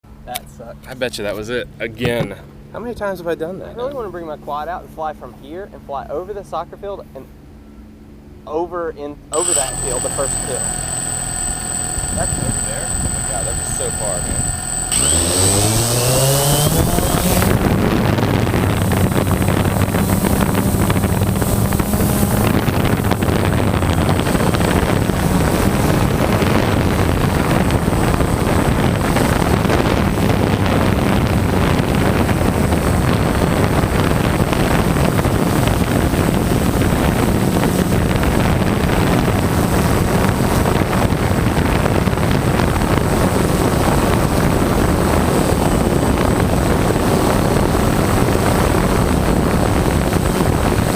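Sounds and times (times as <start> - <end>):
drone motors humming: 9.3 - 31.0
wind rush over microphone: 9.4 - 50.9.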